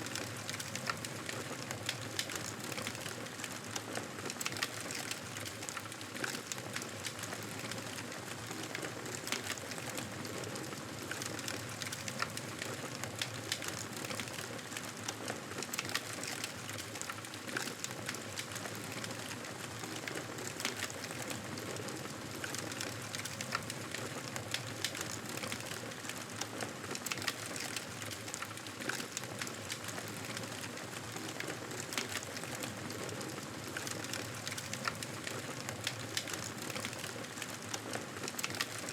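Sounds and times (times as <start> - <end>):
fireplace fire crackling: 0.0 - 38.9.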